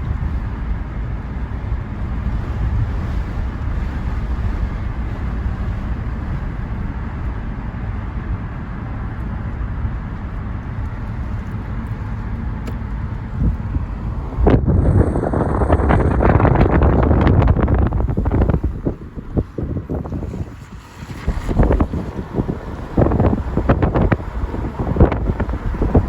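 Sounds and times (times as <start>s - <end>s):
vehicle rumbling on road: 0.0s - 26.0s
wind buffeting microphone: 0.0s - 26.0s.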